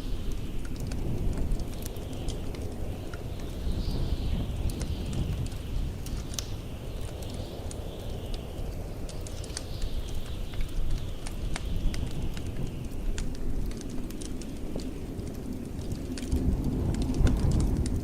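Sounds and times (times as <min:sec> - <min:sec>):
blizzard wind rumble: 0:00.0 - 0:18.0
wind whistling: 0:00.0 - 0:18.0
wood fire crackling and popping: 0:00.0 - 0:18.0.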